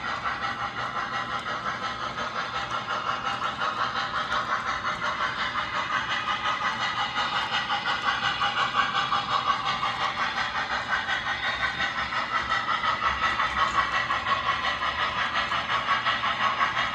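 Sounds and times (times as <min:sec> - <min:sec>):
train passing: 0:00.0 - 0:16.9.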